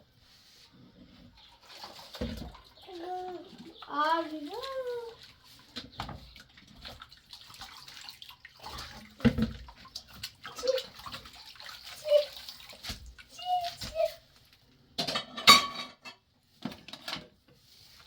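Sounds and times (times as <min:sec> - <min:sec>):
water splashing and pouring: 0:01.4 - 0:14.2.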